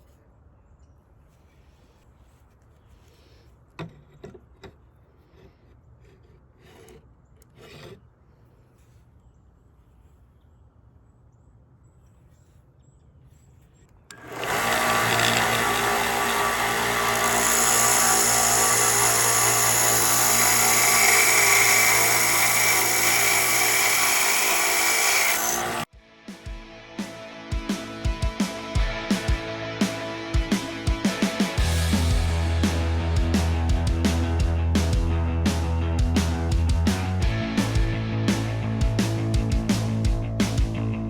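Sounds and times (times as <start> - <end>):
electric drill drilling into steel: 14.1 - 25.9.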